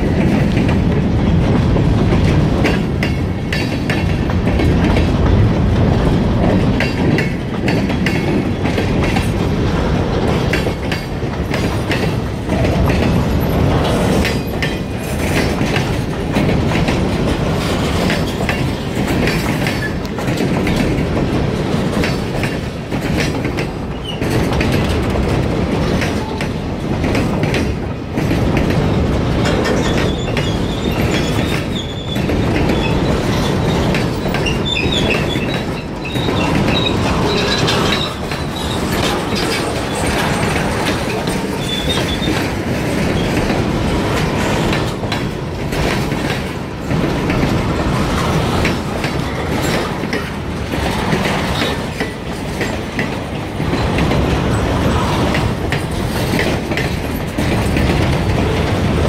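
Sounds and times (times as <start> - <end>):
steel wheels clacking over rail joints: 0.0 - 59.0.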